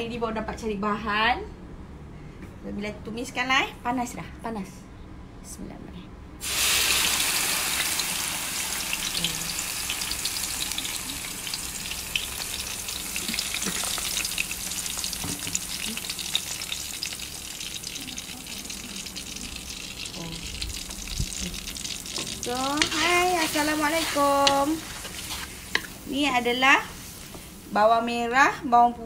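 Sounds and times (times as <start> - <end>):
paste sizzling in hot oil: 6.4 - 27.8
frying crackling: 6.4 - 28.6.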